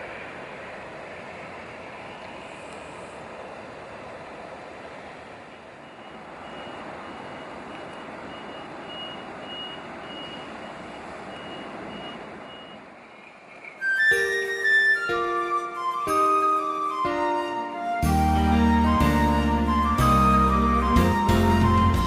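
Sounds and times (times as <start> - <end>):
reversing beeper: 5.8 - 12.9, 13.8 - 22.0
music with flute-like notes: 13.8 - 22.0.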